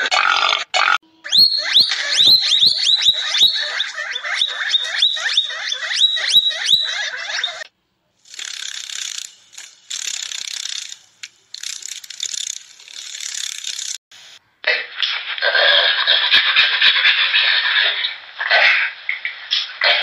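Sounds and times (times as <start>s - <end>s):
high sharp chirping calls: 1.2s - 7.6s
dry rattling hiss: 8.2s - 14.4s.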